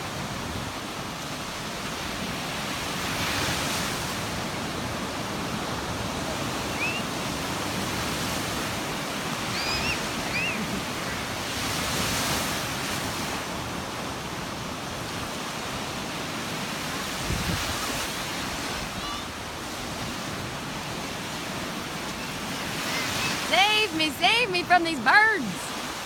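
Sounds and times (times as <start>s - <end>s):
high bird chirps: 9.5s - 10.6s.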